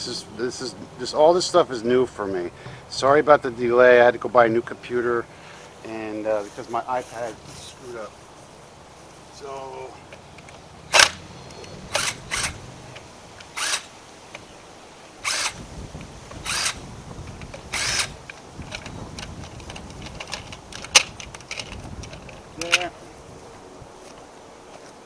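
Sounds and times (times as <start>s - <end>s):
handling scrapes and rustles: 5.4s - 14.5s.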